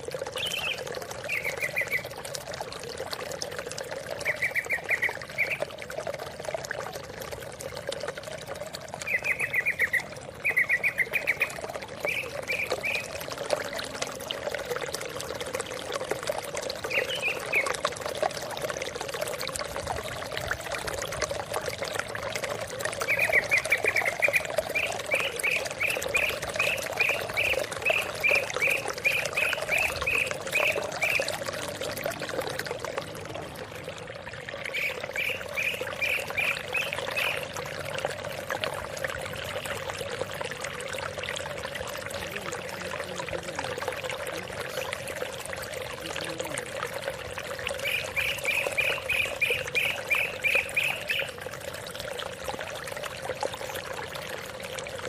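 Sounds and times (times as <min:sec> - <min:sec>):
running water: 0:00.0 - 0:55.0
bird calling rising chips: 0:00.4 - 0:02.1, 0:04.2 - 0:05.7, 0:09.0 - 0:13.2.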